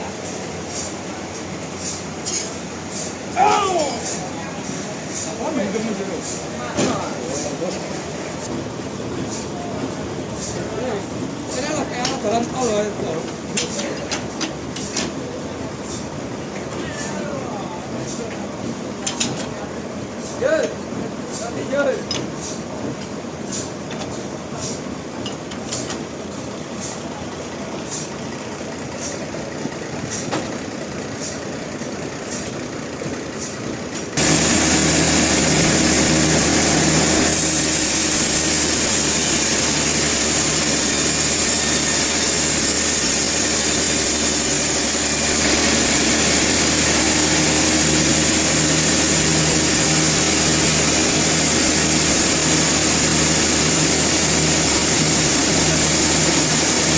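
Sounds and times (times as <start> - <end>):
loud engine drone with hiss: 0.0 - 56.9
machine hum with clicking: 32.2 - 56.9.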